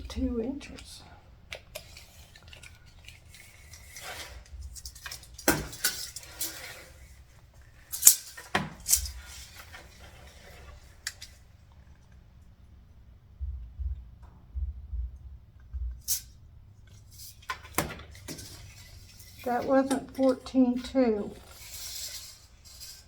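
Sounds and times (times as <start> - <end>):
rustling: 0.0 - 12.9, 15.8 - 23.0
metallic clicks and clinks: 7.9 - 9.4.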